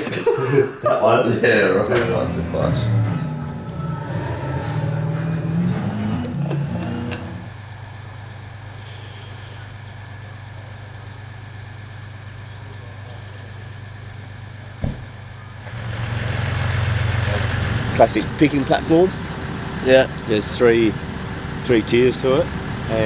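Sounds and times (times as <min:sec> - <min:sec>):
vehicle engine running: 0:01.5 - 0:07.9, 0:15.5 - 0:23.0
single knock: 0:14.8 - 0:15.1.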